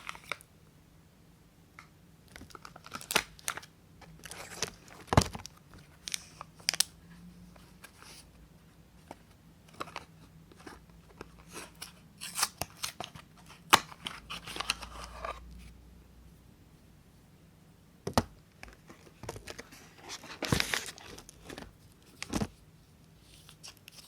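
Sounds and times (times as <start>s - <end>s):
wrapper crinkling and tearing: 2.4s - 6.9s.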